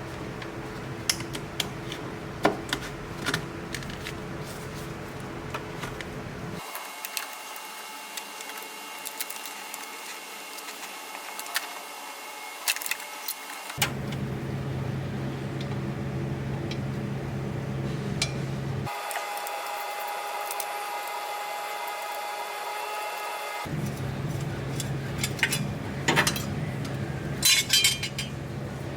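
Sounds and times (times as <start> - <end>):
steady hum: 0.0 - 6.6, 13.8 - 18.9, 23.6 - 28.9
hand tools clicking and clinking: 23.7 - 28.4.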